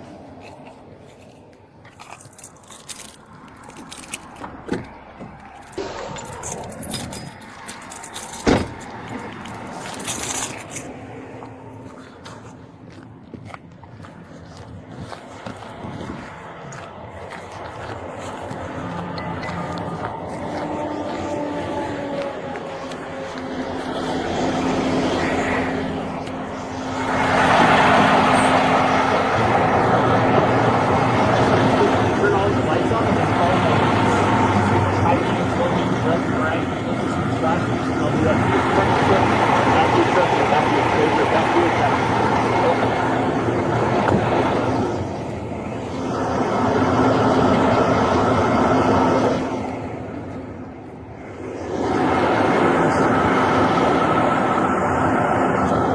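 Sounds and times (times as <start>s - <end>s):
motor vehicle running: 0.0s - 55.9s
rushing noise: 4.2s - 11.9s, 15.7s - 55.9s.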